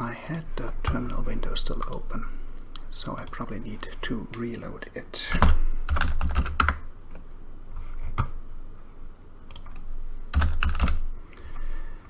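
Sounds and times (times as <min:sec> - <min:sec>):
computer keyboard clicking: 0:05.4 - 0:06.8, 0:09.5 - 0:11.0.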